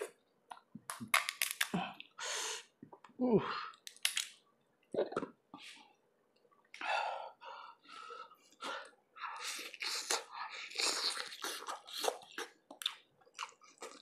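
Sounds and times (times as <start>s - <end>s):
person slurping and chewing: 9.3s - 14.0s.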